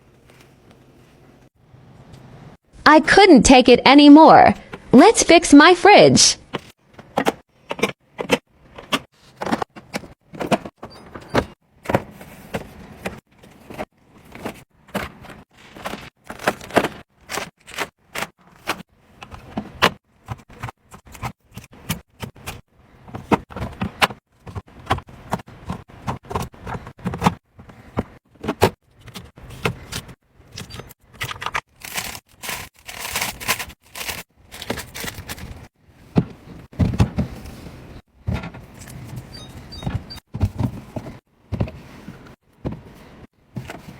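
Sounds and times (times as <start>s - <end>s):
food packaging being handled: 15.6s - 18.8s, 30.6s - 35.7s.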